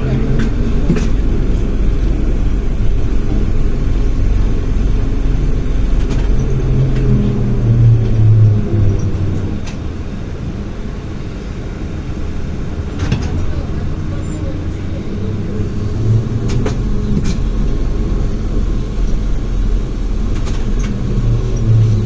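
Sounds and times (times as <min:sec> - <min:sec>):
humming tone: 0:00.0 - 0:11.0
trolleybus rumble: 0:00.0 - 0:22.0.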